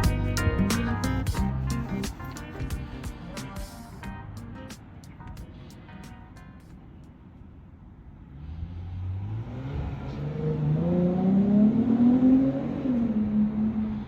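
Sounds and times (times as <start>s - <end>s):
car engine revving: 8.2s - 14.0s.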